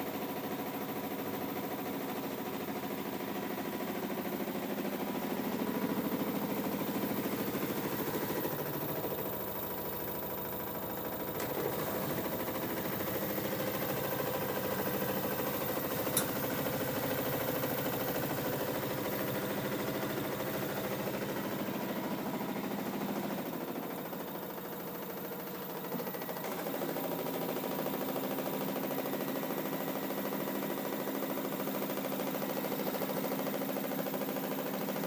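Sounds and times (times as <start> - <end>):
washer-dryer humming drone: 0.0 - 35.0
sharp click: 16.1 - 16.4.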